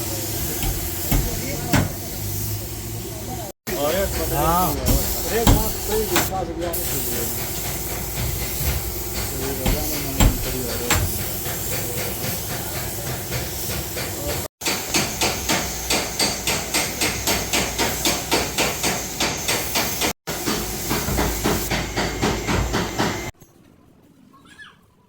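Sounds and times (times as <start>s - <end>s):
hammering on sheet metal: 0.3s - 2.2s, 3.8s - 23.3s.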